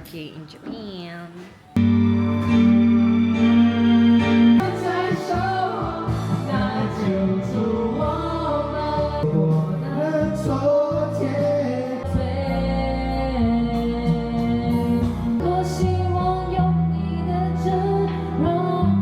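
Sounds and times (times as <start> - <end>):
instrumental backing music: 1.5 - 19.0
person singing: 4.6 - 19.0.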